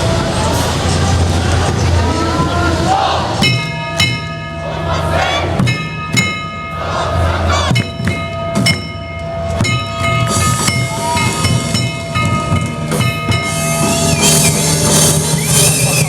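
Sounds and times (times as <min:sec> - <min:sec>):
crowd noise: 0:00.0 - 0:16.0
pulsing low beat: 0:00.0 - 0:16.0
ringing metallic strikes: 0:03.4 - 0:16.0.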